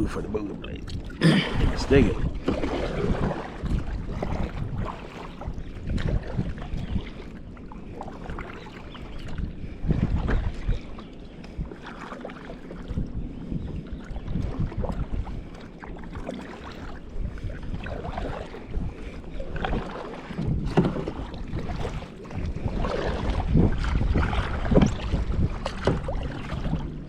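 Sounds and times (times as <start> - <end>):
paddle strokes through water: 0.0 - 27.0
wind rumble on microphone: 0.0 - 27.0.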